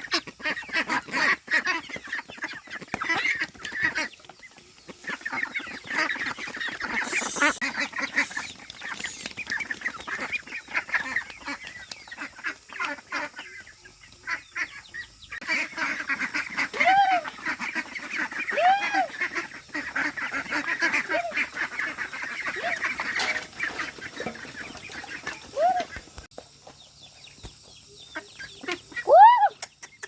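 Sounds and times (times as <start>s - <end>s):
waterfowl flock chattering: 0.0s - 26.2s, 27.9s - 29.1s
drawn-out rising and falling calls: 6.6s - 10.0s.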